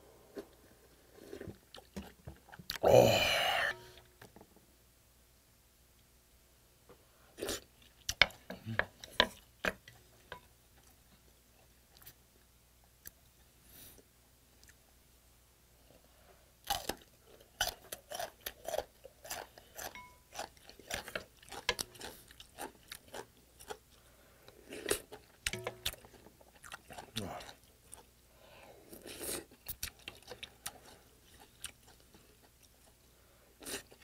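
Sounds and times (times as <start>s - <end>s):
crunchy chewing: 16.6s - 28.2s, 28.9s - 34.0s.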